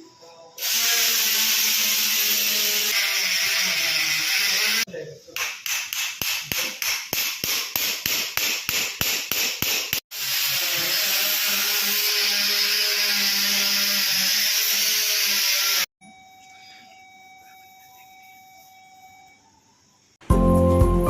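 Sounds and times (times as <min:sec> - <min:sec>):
whirring power tool: 0:00.6 - 0:04.9, 0:10.1 - 0:15.9.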